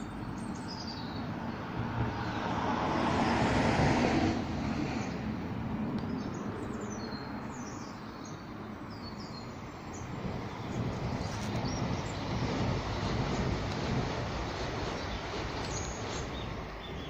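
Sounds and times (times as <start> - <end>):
small birds chirping: 0.0 - 2.5, 6.0 - 13.6, 14.8 - 17.0
road traffic rumble: 0.0 - 17.0.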